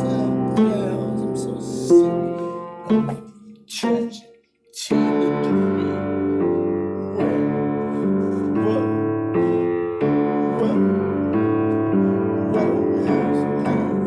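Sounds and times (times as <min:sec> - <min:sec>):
piano-like keyboard chords: 0:00.0 - 0:14.0.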